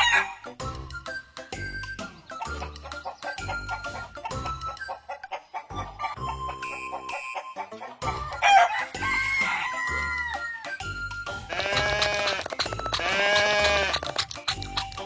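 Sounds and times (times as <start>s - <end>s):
rooster crowing: 0.0s - 0.4s, 8.2s - 10.7s
background music with steady beat: 0.0s - 15.0s.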